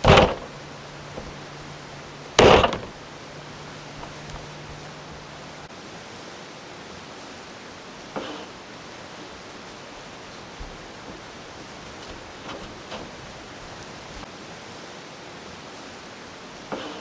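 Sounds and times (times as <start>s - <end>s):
light knocks: 0.0s - 5.7s.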